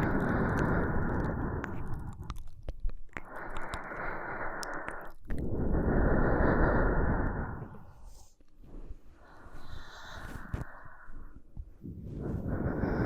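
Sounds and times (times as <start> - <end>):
mouth clicks: 0.0 - 8.6
close breathing into microphone: 0.0 - 13.0.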